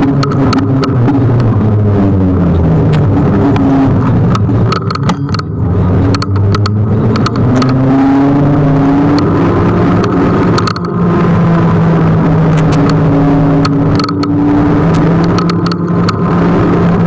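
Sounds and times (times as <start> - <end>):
sharp knocks and clicks: 0.0 - 1.6, 2.8 - 8.0, 9.1 - 11.0, 12.4 - 16.4
electric scooter motor hum: 0.0 - 17.0
wind and road noise: 0.0 - 17.0.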